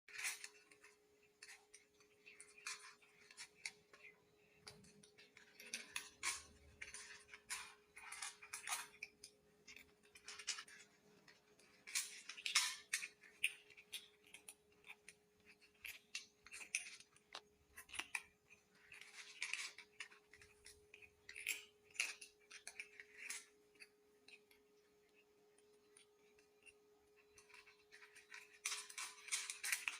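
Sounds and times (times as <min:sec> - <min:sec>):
kittens crunching dry kibble: 0:00.1 - 0:29.9.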